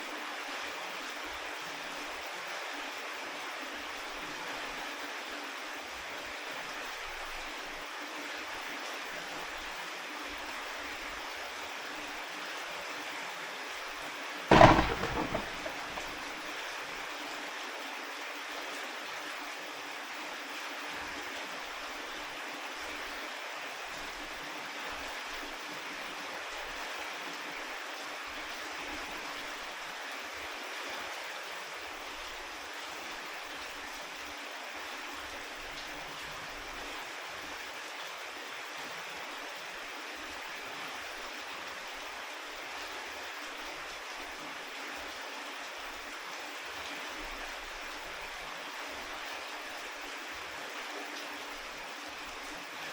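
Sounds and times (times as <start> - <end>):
rain hiss: 0.0 - 52.9
loud bang: 14.5 - 16.2.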